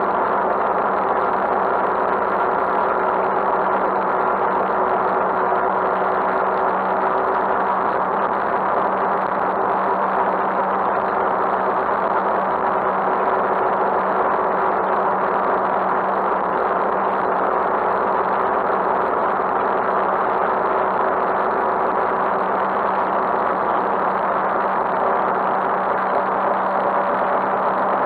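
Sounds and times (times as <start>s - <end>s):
steady rushing noise: 18.2s - 28.0s.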